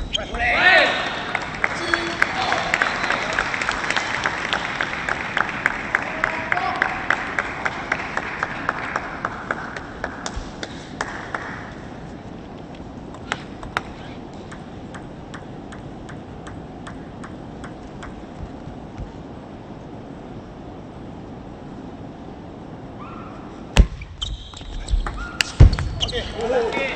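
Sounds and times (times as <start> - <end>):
crowd applause: 0.7 - 11.7.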